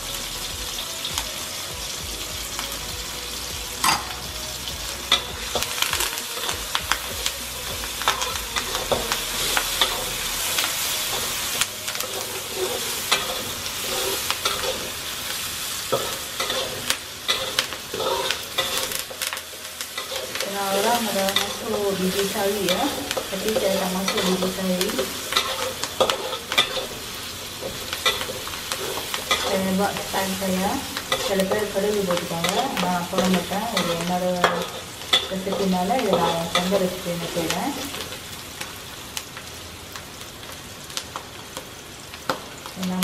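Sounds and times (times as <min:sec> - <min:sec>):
aromatics sizzling in hot oil: 0:00.0 - 0:43.0
metal spatula scraping a wok: 0:05.0 - 0:37.6.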